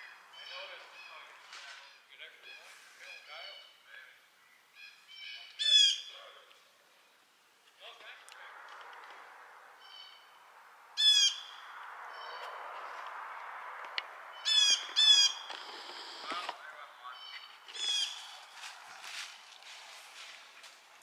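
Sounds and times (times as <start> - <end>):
bird calling: 0.0 - 6.5, 9.7 - 13.2, 14.2 - 18.8.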